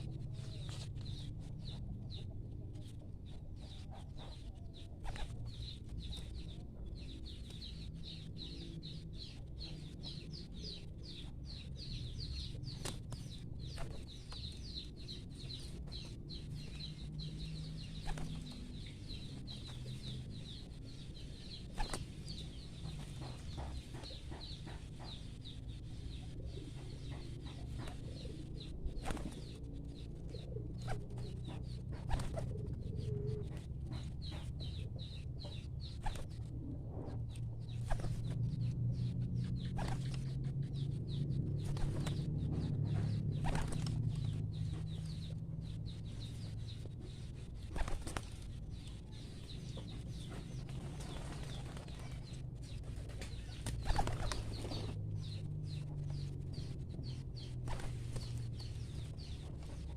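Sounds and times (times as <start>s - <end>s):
pigeons calling low: 26.2s - 38.4s, 53.0s - 55.4s.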